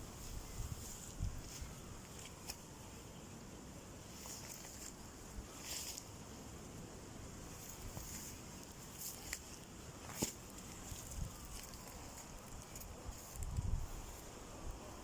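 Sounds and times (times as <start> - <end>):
low wind rumble on microphone: 0.0 - 2.1, 10.7 - 15.0.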